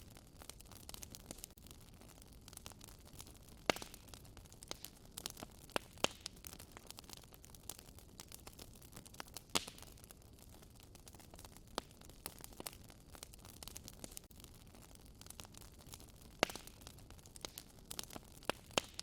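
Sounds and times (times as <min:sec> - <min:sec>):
loud fire pops: 0:00.0 - 0:07.1, 0:07.7 - 0:19.0
wood fire crackling: 0:00.0 - 0:19.0.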